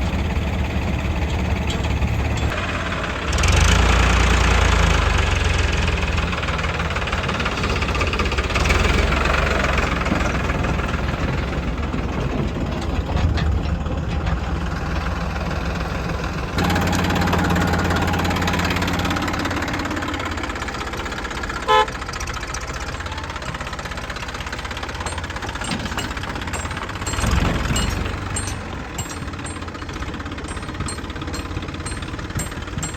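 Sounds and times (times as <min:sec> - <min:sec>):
heavy diesel engine running: 0:00.0 - 0:32.9
short horn beep: 0:21.7 - 0:22.0.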